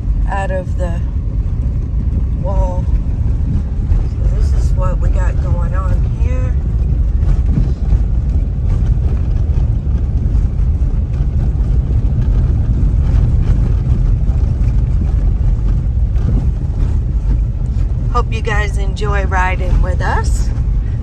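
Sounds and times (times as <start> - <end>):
car engine: 0.0 - 21.0
road noise inside car: 0.0 - 21.0.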